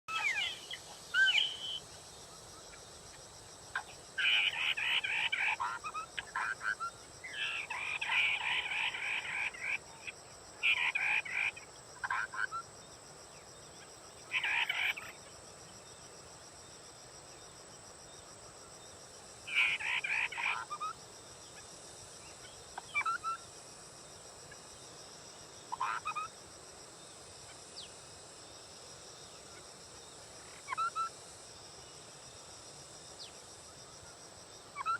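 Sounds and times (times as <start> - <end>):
songbird warbling: 0.1 - 1.8, 3.8 - 6.6, 7.2 - 9.8, 14.3 - 15.2.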